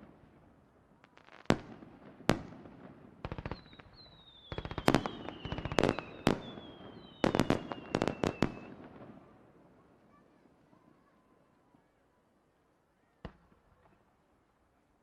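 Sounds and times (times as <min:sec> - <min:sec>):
firework bangs and crackling: 0:00.0 - 0:09.5
falling firework whistles: 0:03.5 - 0:08.6.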